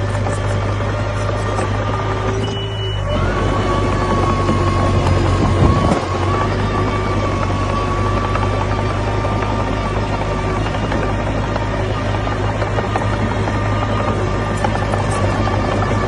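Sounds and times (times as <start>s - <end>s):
bulldozer diesel engine running: 0.0s - 16.0s.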